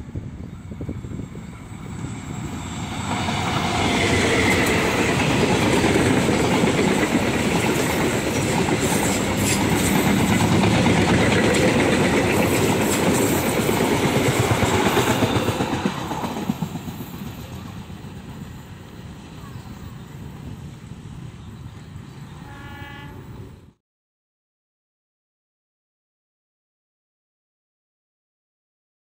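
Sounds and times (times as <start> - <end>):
passenger train passing: 0.0 - 23.8.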